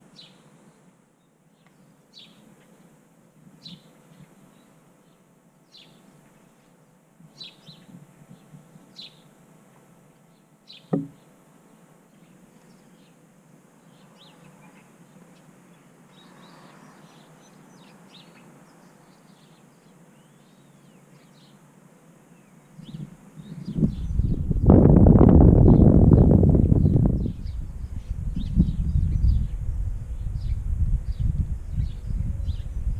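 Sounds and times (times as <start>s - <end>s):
small birds chirping: 0.0s - 9.4s, 10.2s - 32.9s
sharp knock: 10.9s - 11.2s.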